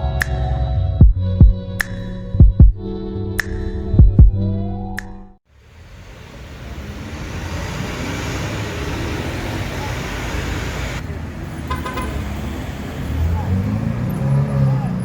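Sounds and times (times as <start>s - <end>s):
road and tyre traffic noise: 5.4s - 15.0s.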